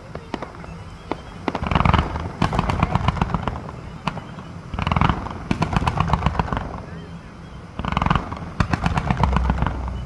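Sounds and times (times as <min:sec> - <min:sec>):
fireworks crackling: 0:00.0 - 0:10.0
firework boom: 0:07.8 - 0:10.0.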